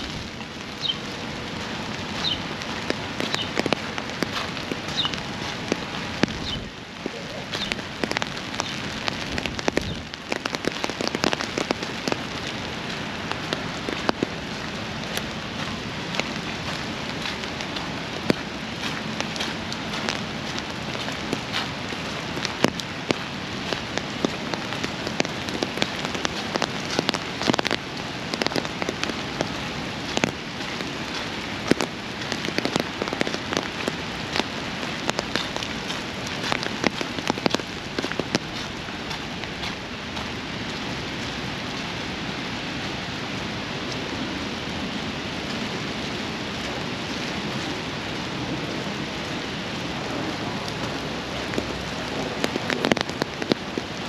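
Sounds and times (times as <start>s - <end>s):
sharp raindrop taps: 0.0s - 42.0s, 45.4s - 54.0s
rain falling: 0.0s - 54.0s.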